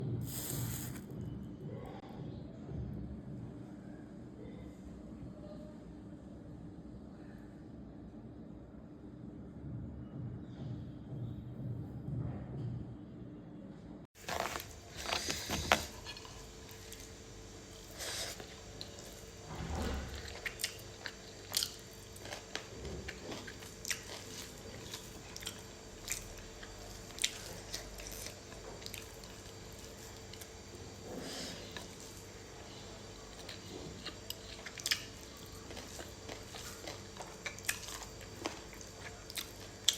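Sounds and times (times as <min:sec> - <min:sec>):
person chewing with mouth sounds: 0:20.1 - 0:32.3, 0:33.3 - 0:39.9.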